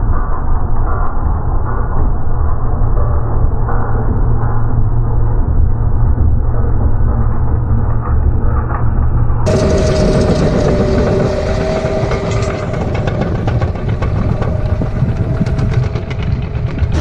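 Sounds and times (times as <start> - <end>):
rapid clattering rattle: 9.5 - 17.0
vehicle engine running loudly: 9.5 - 17.0.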